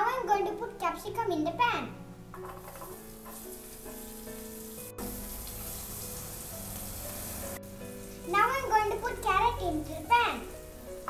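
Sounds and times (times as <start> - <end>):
vegetables sizzling in butter: 2.2 - 11.0.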